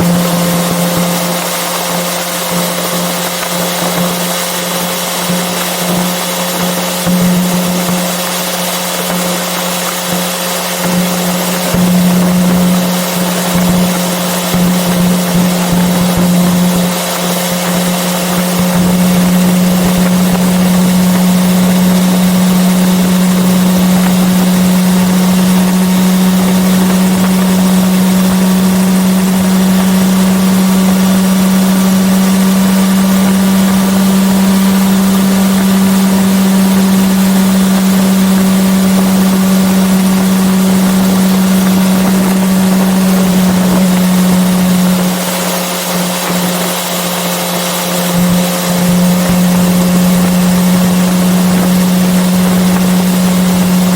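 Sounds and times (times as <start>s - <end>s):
motorcycle engine cruising: 0.0s - 53.9s
wind noise: 10.8s - 46.7s, 48.0s - 53.9s.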